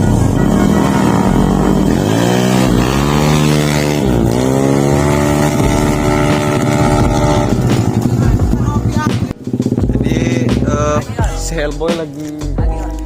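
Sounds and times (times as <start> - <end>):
scooter engine accelerating: 0.0 - 11.3.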